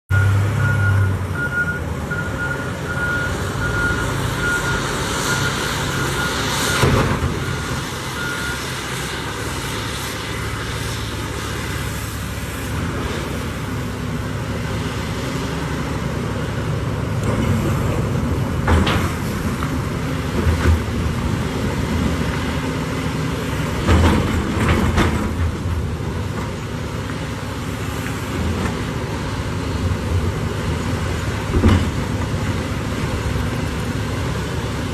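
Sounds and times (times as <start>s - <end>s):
reversing alarm beeping: 0.1s - 8.8s
heavy diesel engines running: 0.1s - 34.9s.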